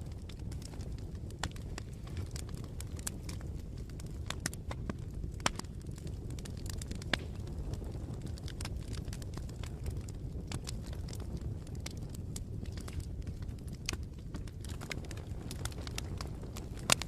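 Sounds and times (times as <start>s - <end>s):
bonfire crackling: 0.0s - 17.0s
wood popping and snapping: 0.2s - 7.6s.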